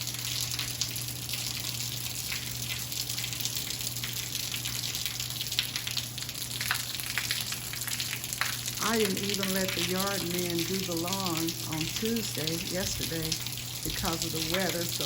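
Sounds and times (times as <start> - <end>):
steady low hum: 0.0 - 15.0
heavy rain falling: 6.6 - 15.0.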